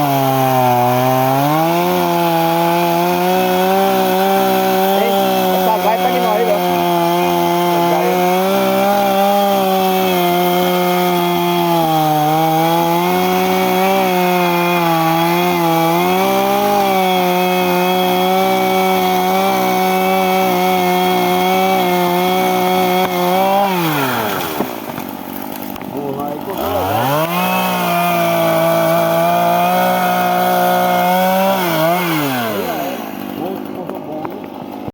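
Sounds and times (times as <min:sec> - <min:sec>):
chainsaw running at high revs: 0:00.0 - 0:34.9.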